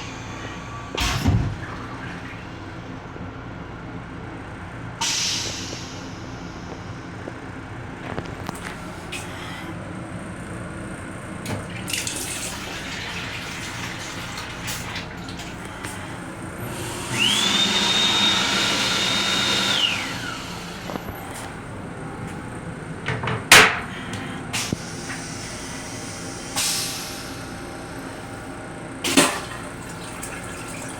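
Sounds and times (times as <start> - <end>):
toilet flushing with high whine: 0.0 - 30.9.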